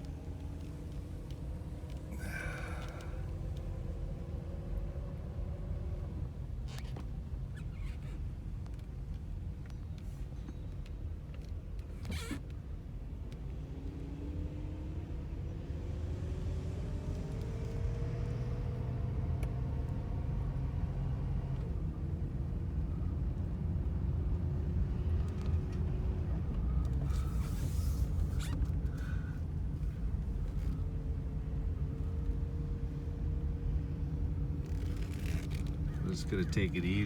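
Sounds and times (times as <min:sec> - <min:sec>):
car engine accelerating: 0:00.0 - 0:06.3, 0:13.4 - 0:23.5, 0:24.2 - 0:37.0.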